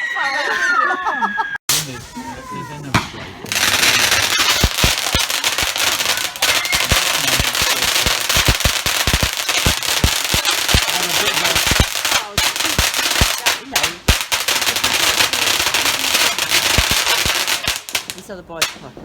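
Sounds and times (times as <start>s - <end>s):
fireworks crackling and popping: 1.7s - 19.0s.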